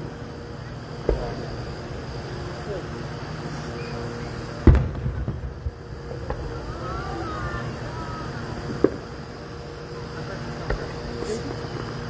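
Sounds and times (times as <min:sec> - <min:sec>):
steady low rumble: 0:00.0 - 0:12.0
firework pops: 0:01.0 - 0:01.4, 0:04.6 - 0:06.6, 0:08.8 - 0:09.1
firework boom: 0:01.0 - 0:01.6, 0:04.6 - 0:06.8.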